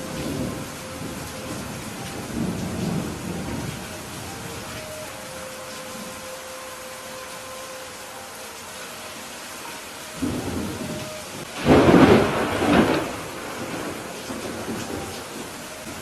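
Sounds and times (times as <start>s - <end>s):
thunder rumbling: 0.0s - 4.9s, 10.2s - 16.0s
steady rain: 0.0s - 16.0s.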